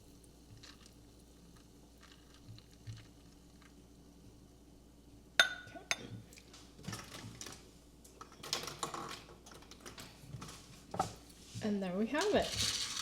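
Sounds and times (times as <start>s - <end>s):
ice clinking in a cup: 12.2s - 13.0s.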